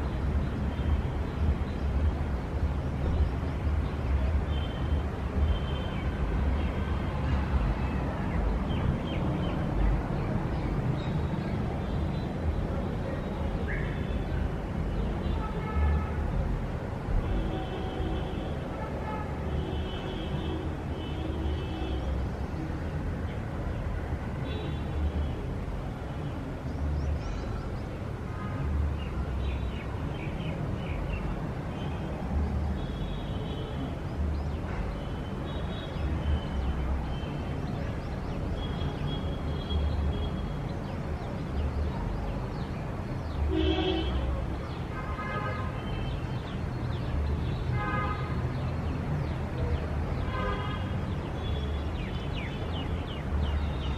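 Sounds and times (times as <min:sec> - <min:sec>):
road traffic rumble: 0:00.0 - 0:53.9.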